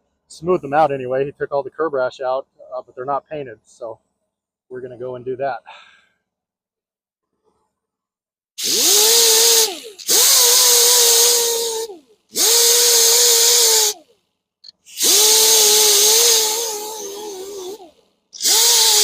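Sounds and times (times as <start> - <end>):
abrasive hissing on metal: 8.6 - 14.0, 14.9 - 19.0
power grinder whining: 8.6 - 14.0.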